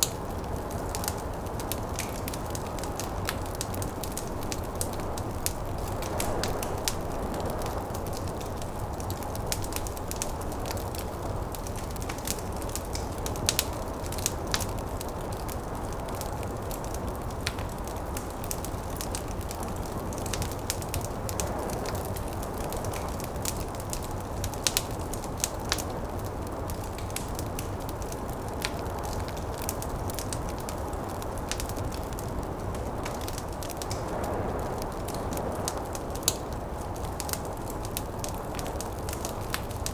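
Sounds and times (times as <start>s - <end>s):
wood fire crackling and popping: 0.0s - 39.9s
rush of wind: 0.7s - 12.8s, 28.2s - 39.9s.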